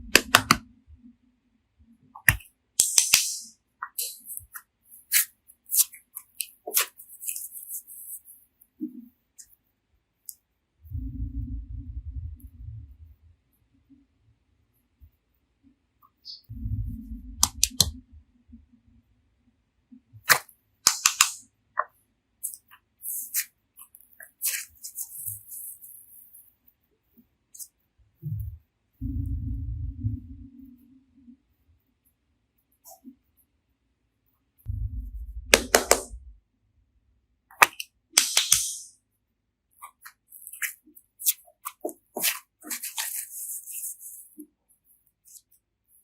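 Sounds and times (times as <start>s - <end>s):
low rumble: 10.8s - 13.2s, 16.5s - 18.6s, 29.0s - 30.8s, 34.7s - 36.4s.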